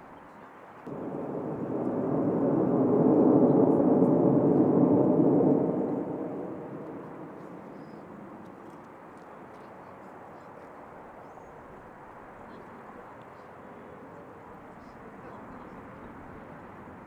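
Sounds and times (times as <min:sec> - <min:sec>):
jet aircraft roar: 0:00.9 - 0:11.2.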